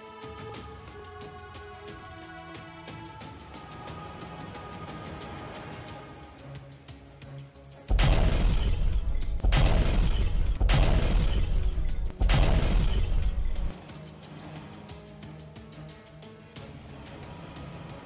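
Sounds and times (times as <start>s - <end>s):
background music: 0.0s - 18.0s
cartoon crashing noises: 7.8s - 13.7s.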